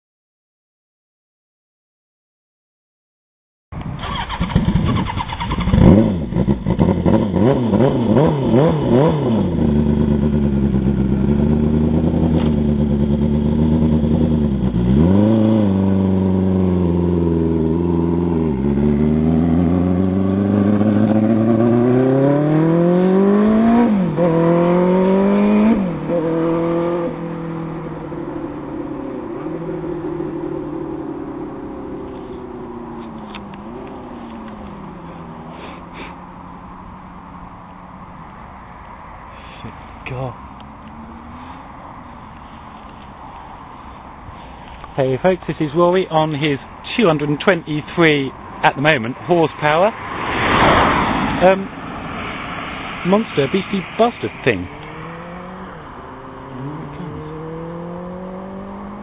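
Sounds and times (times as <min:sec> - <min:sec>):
motorcycle engine revving: 0:03.9 - 0:37.2, 0:49.6 - 0:59.0
motorcycle accelerating away: 0:04.0 - 0:37.4, 0:40.0 - 0:42.1, 0:49.6 - 0:59.0.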